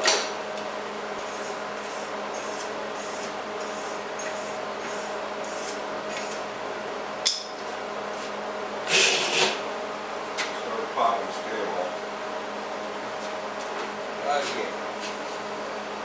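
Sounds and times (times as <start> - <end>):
welder humming: 1.2 - 6.4
welding arc crackling hiss: 1.2 - 6.4.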